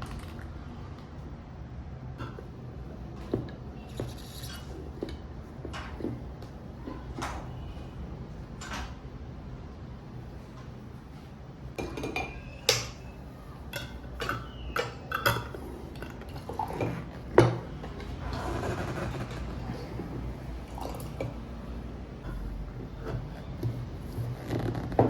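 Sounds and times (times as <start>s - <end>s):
dishes and cutlery clinking: 11.8s - 13.1s, 13.7s - 18.2s.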